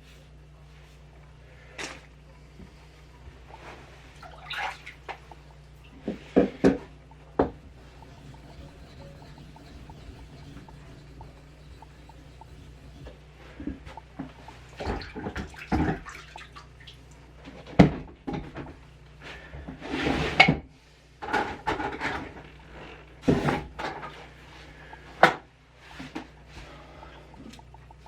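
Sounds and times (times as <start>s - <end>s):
scraping and splashing: 2.7s - 17.0s.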